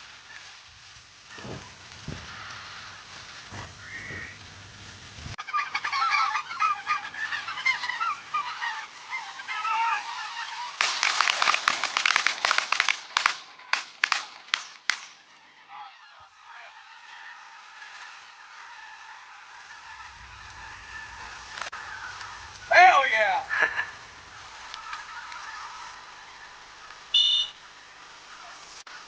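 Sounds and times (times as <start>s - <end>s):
geese yelping: 0.0s - 29.0s
shotgun blasts: 10.8s - 15.2s.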